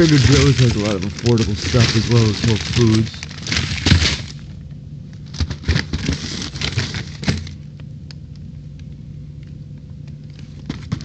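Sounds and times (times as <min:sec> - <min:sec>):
food packages crinkling: 0:00.0 - 0:07.7
steady low hum: 0:00.0 - 0:11.0.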